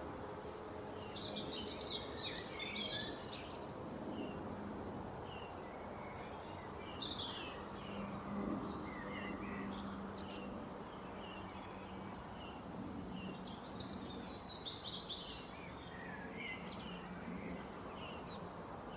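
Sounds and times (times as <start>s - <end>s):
small birds chirping: 0.0s - 4.5s, 5.2s - 18.9s.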